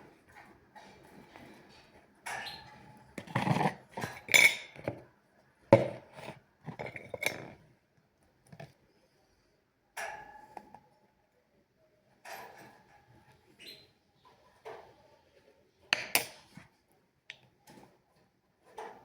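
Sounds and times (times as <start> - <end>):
dishes and cutlery clinking: 1.0 - 5.0, 5.8 - 7.6, 15.9 - 16.6.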